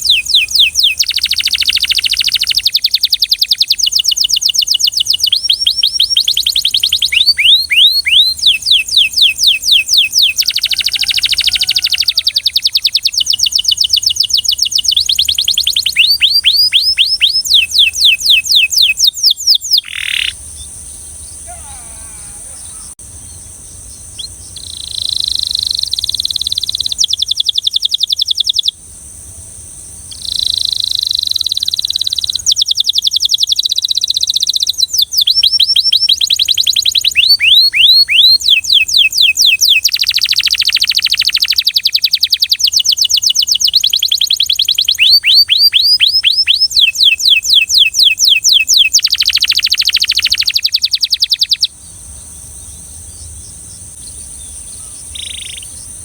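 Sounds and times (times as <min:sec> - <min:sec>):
canary singing trills: 0:00.0 - 0:28.8, 0:30.0 - 0:56.0.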